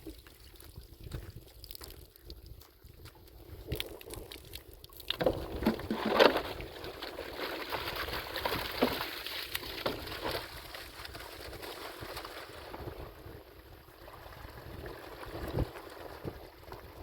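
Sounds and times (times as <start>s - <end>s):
water splashing into container: 3.7s - 12.4s.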